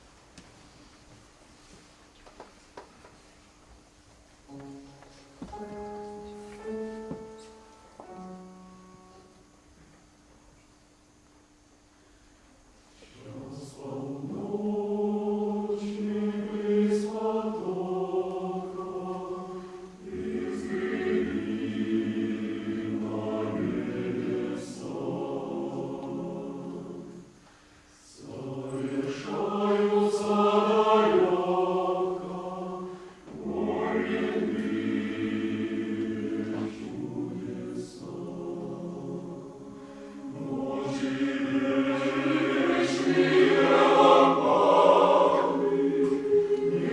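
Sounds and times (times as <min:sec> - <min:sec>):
choir singing: 0:13.0 - 0:27.4, 0:28.0 - 0:46.9.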